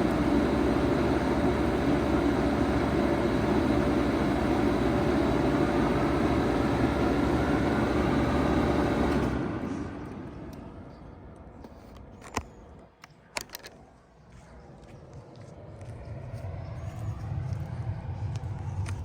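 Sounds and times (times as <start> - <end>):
heat pump humming: 0.0 - 10.6.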